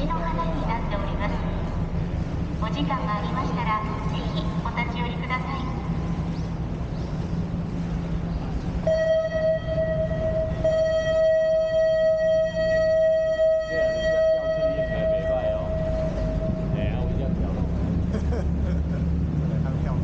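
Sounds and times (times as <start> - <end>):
boat engine droning: 0.0 - 20.0
boat horn blast: 8.8 - 17.4.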